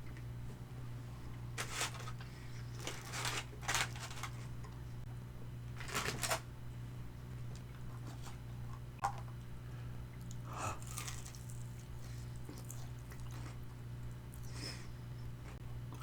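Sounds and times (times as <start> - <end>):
steady low hum: 0.0 - 16.0
crunchy bites into fried chicken: 10.8 - 13.7.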